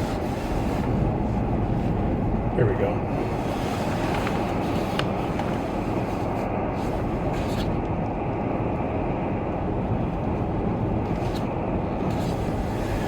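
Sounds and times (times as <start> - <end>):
car interior road rumble: 0.0 - 13.0.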